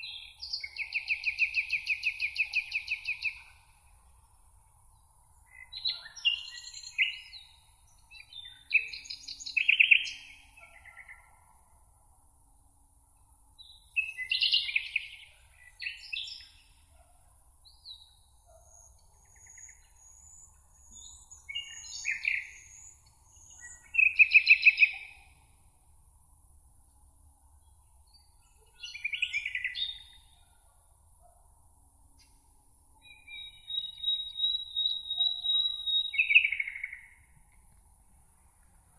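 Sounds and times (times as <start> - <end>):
songbirds singing: 0.0 - 3.8, 4.9 - 11.5, 13.6 - 25.6, 27.5 - 30.6, 32.1 - 37.7
steady background hiss: 0.0 - 38.9.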